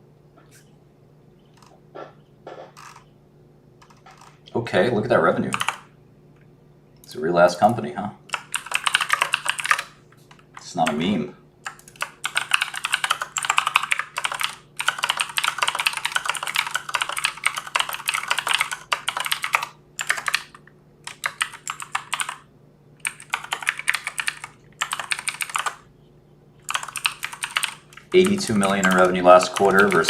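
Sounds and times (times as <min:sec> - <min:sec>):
fast typing on keyboard: 0:02.8 - 0:03.0, 0:03.8 - 0:04.4, 0:05.5 - 0:05.8, 0:08.3 - 0:10.0, 0:11.7 - 0:22.4, 0:23.0 - 0:25.8, 0:26.6 - 0:30.0.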